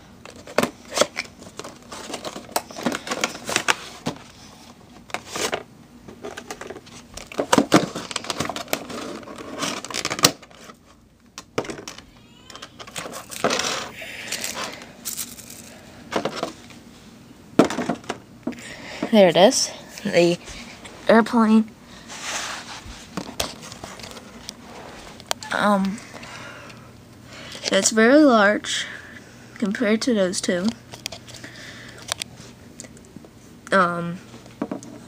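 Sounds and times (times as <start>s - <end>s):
packaging rustling: 0.3s - 4.4s, 6.2s - 11.0s, 12.5s - 16.7s.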